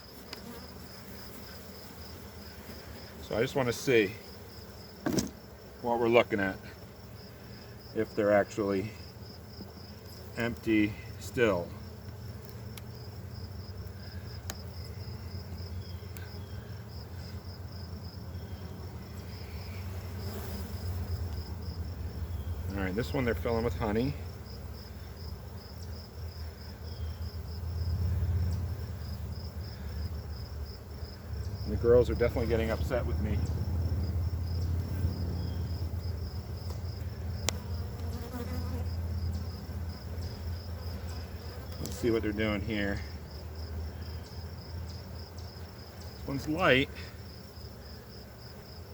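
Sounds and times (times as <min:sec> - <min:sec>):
high pulsing insect chirp: 0:00.0 - 0:48.9
honey bees buzzing: 0:00.0 - 0:48.9
faint clicks from hive frames: 0:00.2 - 0:00.6, 0:09.6 - 0:10.8, 0:12.0 - 0:13.0, 0:13.7 - 0:16.5, 0:21.2 - 0:21.5, 0:36.6 - 0:39.5, 0:41.0 - 0:42.1, 0:44.2 - 0:46.6.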